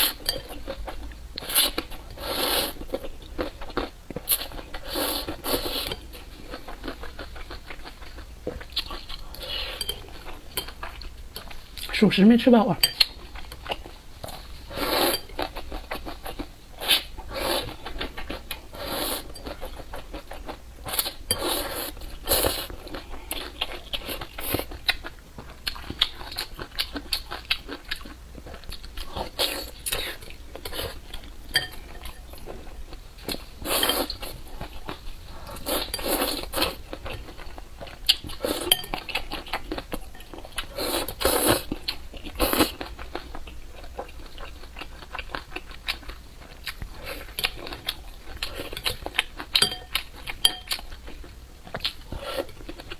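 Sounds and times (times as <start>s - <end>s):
utensils clinking against bowl: 12.8s - 13.2s, 31.5s - 32.4s, 38.5s - 39.2s, 49.6s - 50.9s
chewing and biting: 33.3s - 52.9s.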